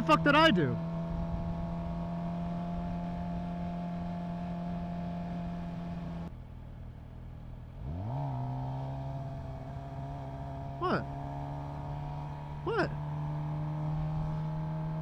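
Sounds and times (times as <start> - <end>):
motorcycle engine revving: 0.0 - 6.3, 7.7 - 15.0.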